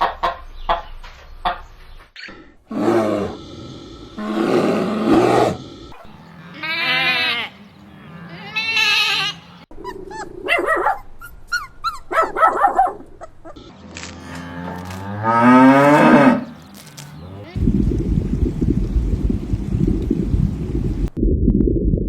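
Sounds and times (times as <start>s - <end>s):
rough noisy animal calls: 2.7s - 10.7s
pitched animal cries: 6.0s - 7.6s, 8.2s - 12.3s.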